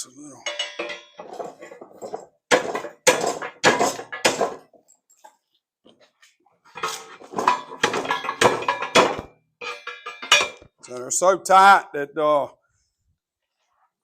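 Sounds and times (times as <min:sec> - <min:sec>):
steel plate clanking: 0:00.4 - 0:04.6, 0:06.8 - 0:10.6.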